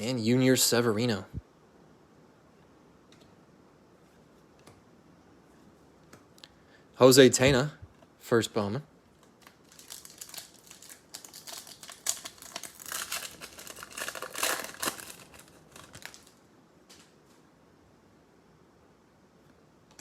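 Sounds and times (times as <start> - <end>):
wrapper crinkling and tearing: 9.1 - 17.1.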